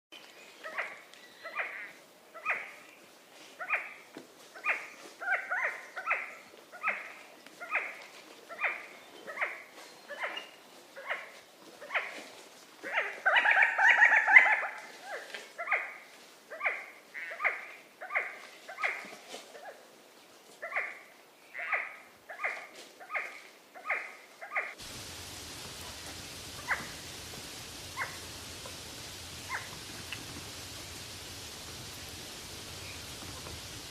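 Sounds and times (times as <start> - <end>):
bird calling: 20.6 - 33.9.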